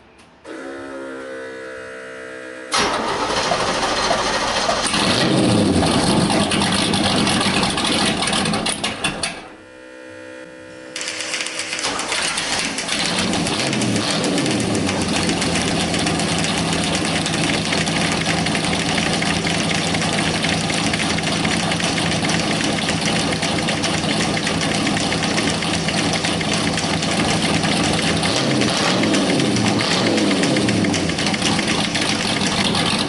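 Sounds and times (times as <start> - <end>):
vee eight engine idling: 11.8 - 33.0.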